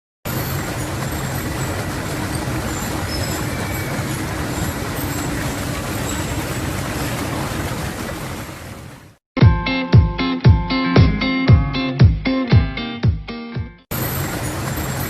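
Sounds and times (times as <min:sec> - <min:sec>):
waterfall rushing: 0:00.3 - 0:09.2, 0:13.9 - 0:15.0.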